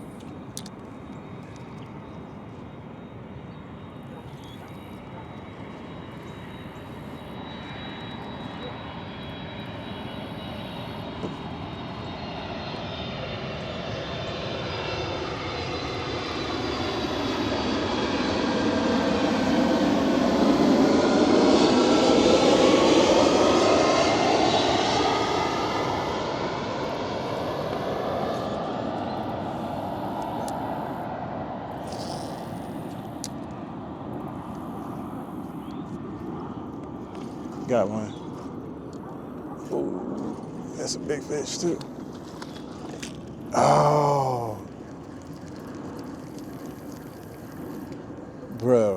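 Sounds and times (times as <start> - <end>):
motor drone approaching: 0.0 - 48.9.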